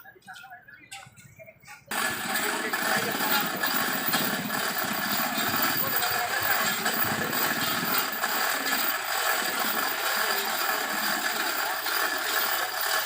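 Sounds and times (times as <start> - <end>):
vehicle engine pulsing: 1.1 - 13.0.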